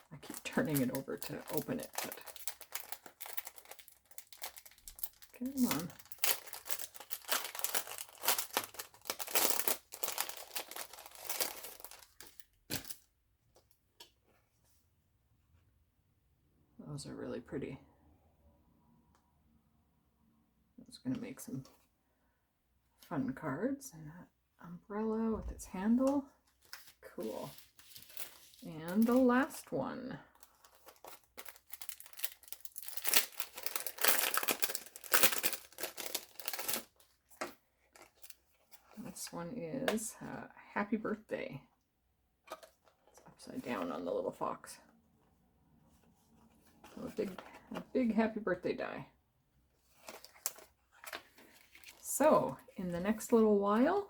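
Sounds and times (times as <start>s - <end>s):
packaging crinkling and tearing: 0.2s - 13.0s, 26.6s - 29.3s, 30.4s - 39.0s, 49.9s - 52.0s.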